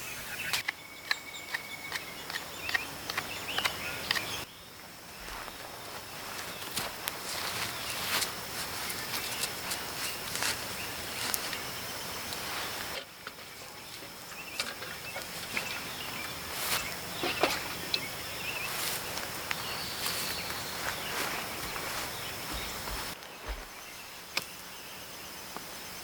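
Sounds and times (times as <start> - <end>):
insect drone: 0.0 - 26.0.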